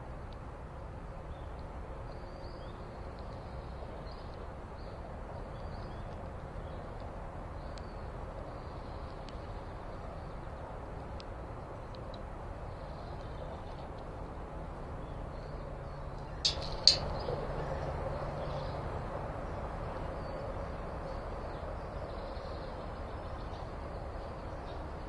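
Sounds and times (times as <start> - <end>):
low outdoor rumble: 0.0 - 25.0
small birds chirping: 15.0 - 25.0.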